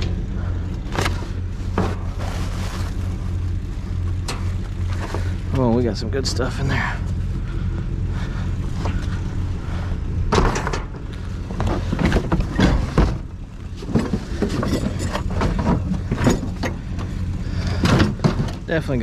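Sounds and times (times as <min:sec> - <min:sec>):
truck engine idling: 0:00.0 - 0:19.0
knocks and rattles: 0:10.2 - 0:18.9.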